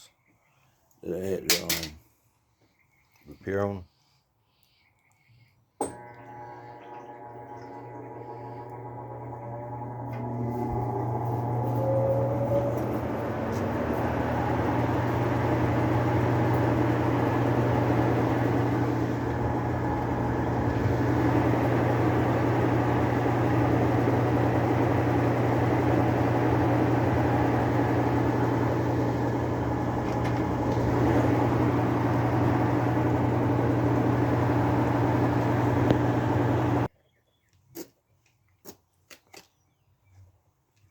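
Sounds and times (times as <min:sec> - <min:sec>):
washing machine spinning: 0:05.8 - 0:36.9.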